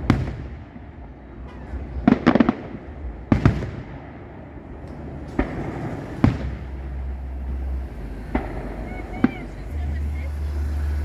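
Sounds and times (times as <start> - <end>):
fireworks bursting with bangs: 0.0 - 11.0
steady low rumble: 0.0 - 11.0.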